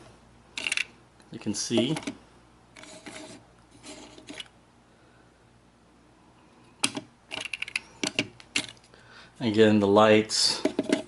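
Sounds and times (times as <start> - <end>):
plastic toy rubbing and scraping: 2.8 - 4.5.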